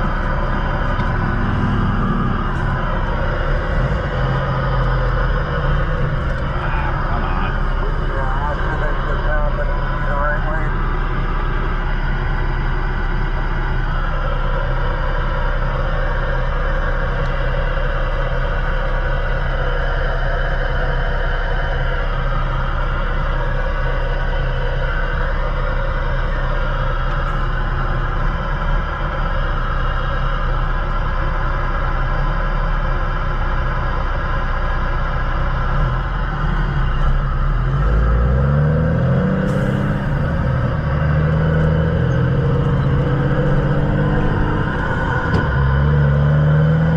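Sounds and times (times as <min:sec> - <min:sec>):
tyre and road noise: 0:00.0 - 0:12.2, 0:35.8 - 0:46.9
truck diesel engine droning: 0:00.0 - 0:46.9.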